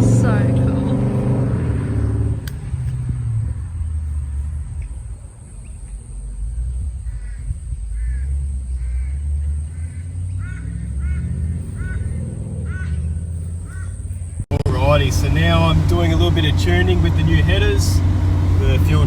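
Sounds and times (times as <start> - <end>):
car engine exhaust rumble: 0.0 - 19.0
crow cawing: 7.2 - 14.0.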